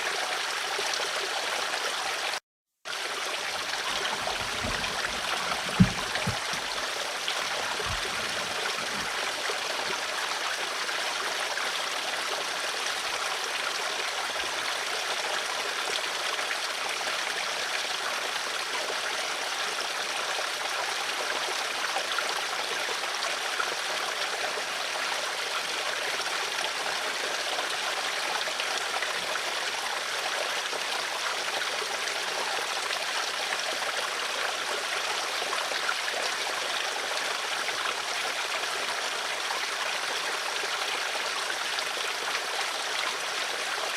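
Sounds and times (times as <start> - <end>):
flowing water rushing: 0.0 - 43.9
low knocks: 3.8 - 6.8, 7.4 - 9.1.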